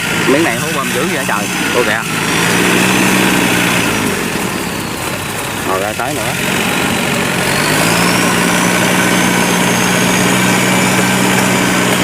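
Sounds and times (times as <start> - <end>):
diesel tractor engine revving: 0.0 - 12.0
thin high whine: 0.1 - 2.2.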